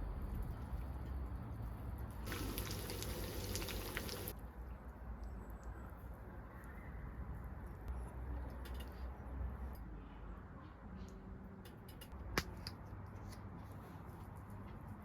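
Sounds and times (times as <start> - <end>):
liquid pouring hiss: 2.2 - 4.4.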